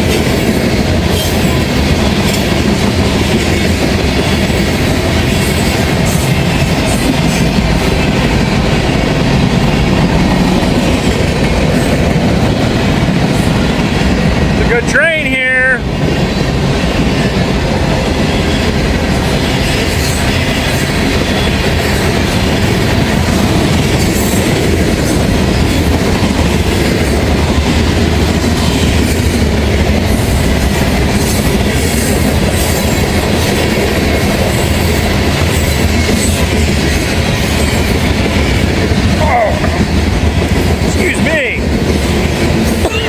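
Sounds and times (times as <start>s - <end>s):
freight train rumbling past: 0.0s - 43.0s.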